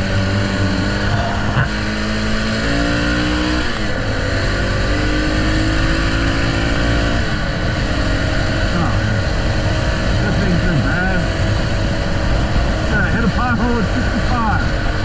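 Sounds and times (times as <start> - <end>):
motorcycle engine accelerating: 0.0 - 15.0
wind rush on microphone: 3.6 - 15.0.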